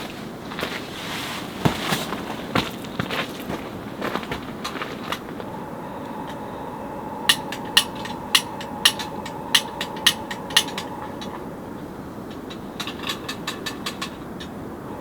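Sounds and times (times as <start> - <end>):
steady rushing background: 5.0 - 15.0.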